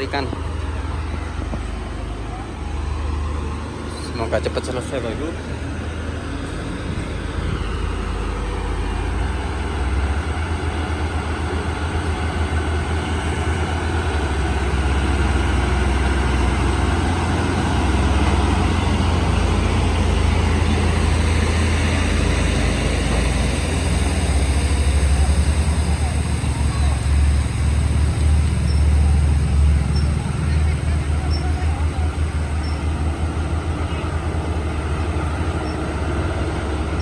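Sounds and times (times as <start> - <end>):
heavy diesel truck engines labouring: 0.0 - 37.0.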